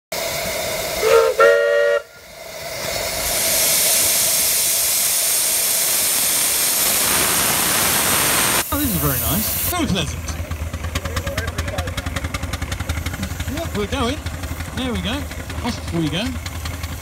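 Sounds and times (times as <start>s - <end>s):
steam hiss: 0.1s - 10.0s, 12.2s - 17.0s
steam whistle blasts: 1.0s - 2.2s.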